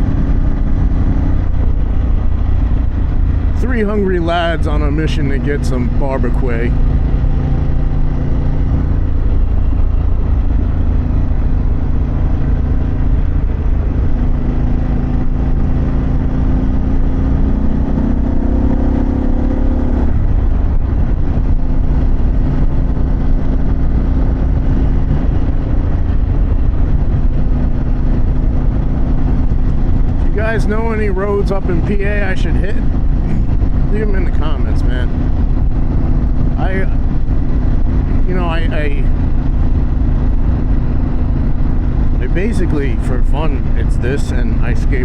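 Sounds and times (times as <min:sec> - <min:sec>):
motorcycle engine running: 0:00.0 - 0:45.0
wind and road noise: 0:00.0 - 0:45.0.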